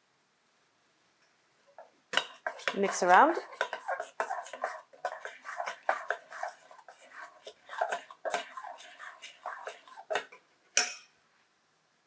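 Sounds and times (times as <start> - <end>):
spoon scraping a pot: 1.8 - 11.0.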